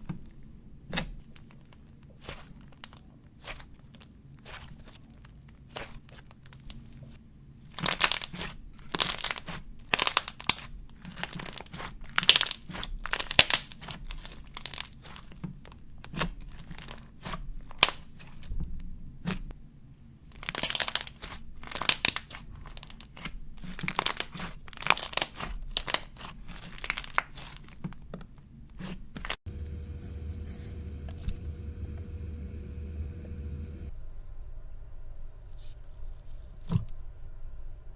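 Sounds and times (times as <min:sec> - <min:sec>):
slime crackling and crunching: 0:07.7 - 0:15.4, 0:16.0 - 0:18.5, 0:20.3 - 0:27.8
steady low hum: 0:29.5 - 0:35.1.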